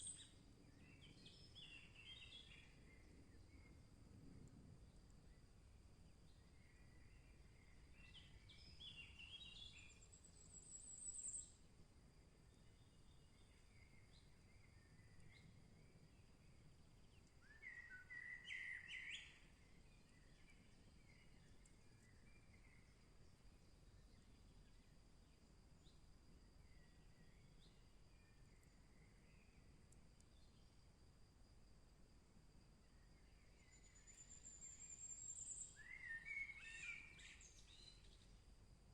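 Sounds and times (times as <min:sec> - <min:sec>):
bird chirps: 0:00.0 - 0:03.0, 0:08.0 - 0:11.6, 0:17.2 - 0:23.0, 0:33.4 - 0:38.4
songbirds singing: 0:00.0 - 0:03.8, 0:06.1 - 0:11.6, 0:12.4 - 0:30.8, 0:32.9 - 0:38.4
low background hiss: 0:00.0 - 0:38.9.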